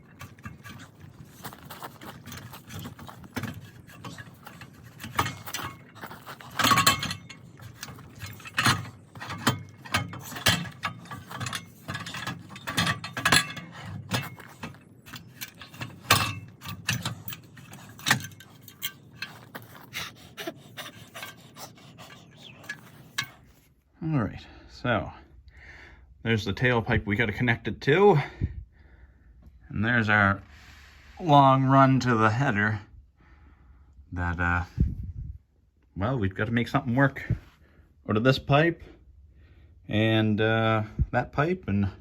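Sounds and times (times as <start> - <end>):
metal clanking on metal: 0.0 - 23.6.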